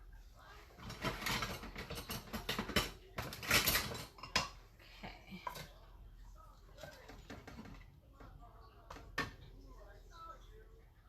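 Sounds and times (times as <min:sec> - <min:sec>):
metal cutlery clattering: 0:00.8 - 0:04.7.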